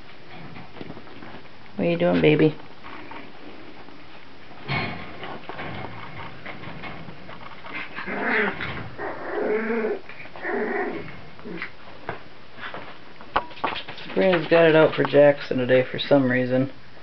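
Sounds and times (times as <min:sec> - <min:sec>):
puppies growling and whining: 0:02.8 - 0:04.0, 0:07.4 - 0:11.8.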